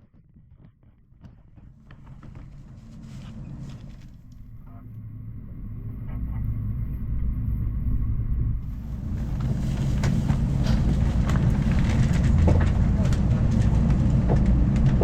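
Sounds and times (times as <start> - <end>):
rushing noise with light clatter: 0.9 - 4.4, 7.1 - 15.0
train running rumble: 1.6 - 15.0.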